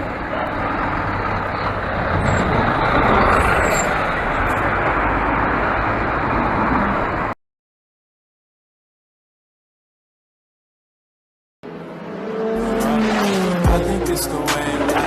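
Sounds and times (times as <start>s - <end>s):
road vehicle rumble: 0.0s - 7.4s, 11.6s - 15.0s.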